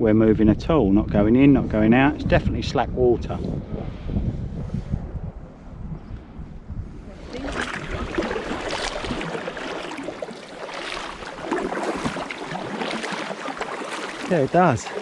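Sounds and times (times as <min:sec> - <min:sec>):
wind rumble on microphone: 0:00.0 - 0:13.2
paddles splashing in water: 0:07.1 - 0:15.0
water trickling off blades: 0:07.3 - 0:15.0.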